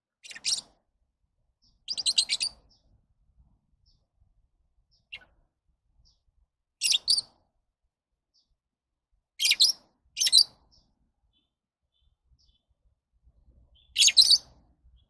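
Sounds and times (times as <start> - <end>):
lovebirds chirping: 0.2 - 0.8, 1.6 - 3.0, 6.8 - 7.4, 9.4 - 12.8, 13.7 - 15.0.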